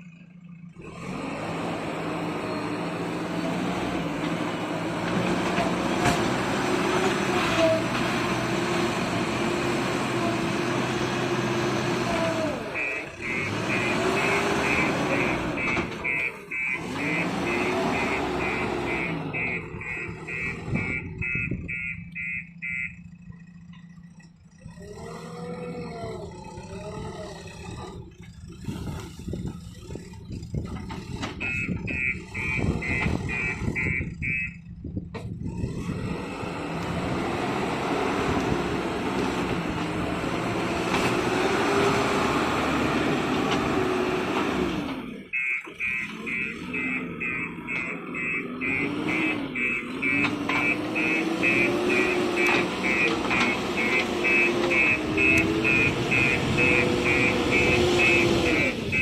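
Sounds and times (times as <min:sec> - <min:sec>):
diesel engine running: 0:00.0 - 0:59.0
reversing alarm beeping: 0:12.6 - 0:23.2, 0:31.4 - 0:34.6, 0:45.3 - 0:59.0.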